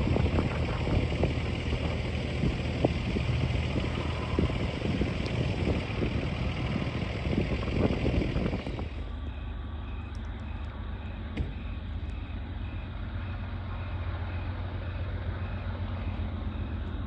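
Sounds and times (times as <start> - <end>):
train wheels rumbling on rail: 0.0 - 9.2
wheels clicking and clacking: 0.0 - 9.2.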